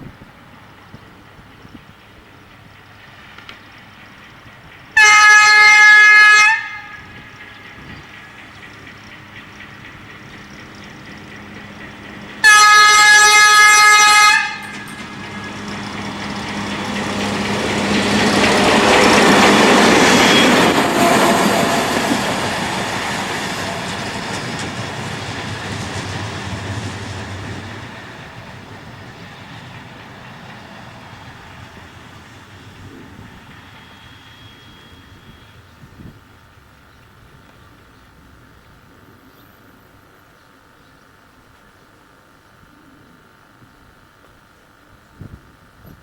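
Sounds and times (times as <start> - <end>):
train engine and wheels passing: 0.0 - 46.0
locomotive horn blast: 5.0 - 7.4, 12.4 - 15.7, 19.1 - 22.2.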